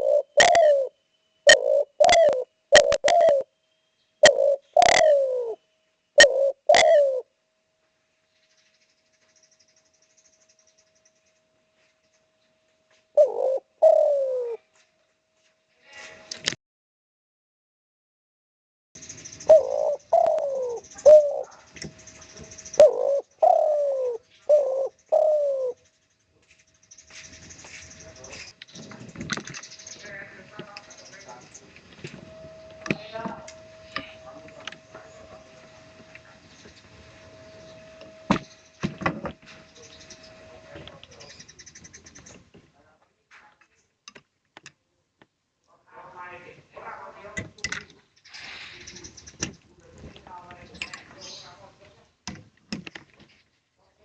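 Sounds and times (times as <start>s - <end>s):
dove cooing: 0.0s - 3.5s, 4.2s - 5.6s, 6.2s - 7.3s, 13.2s - 14.6s, 19.4s - 21.6s, 22.3s - 25.8s.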